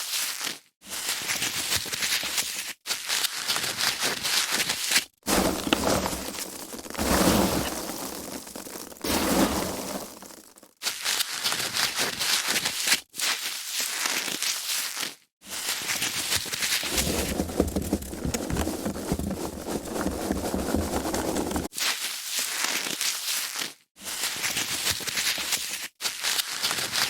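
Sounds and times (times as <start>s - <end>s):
foam packaging crackling and squeaking: 3.2s - 13.0s, 15.9s - 21.7s.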